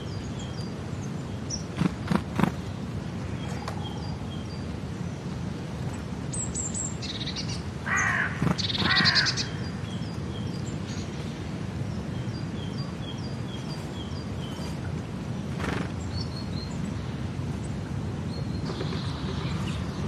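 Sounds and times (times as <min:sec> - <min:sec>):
low background noise: 0:00.0 - 0:20.0
small birds chirping: 0:00.0 - 0:20.0
loud bird calls: 0:06.5 - 0:11.1.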